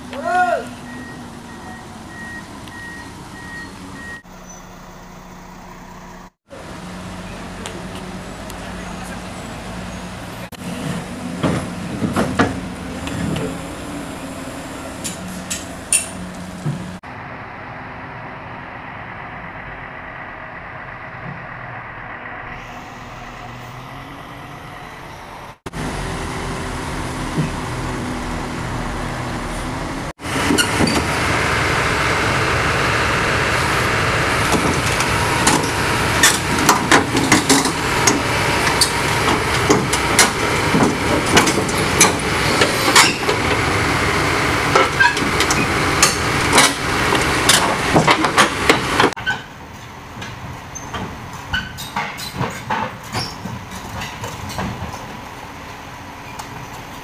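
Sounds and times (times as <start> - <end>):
diesel engine running: 0.0 - 51.4
metal clanks and rattles: 34.5 - 43.6, 44.7 - 55.2.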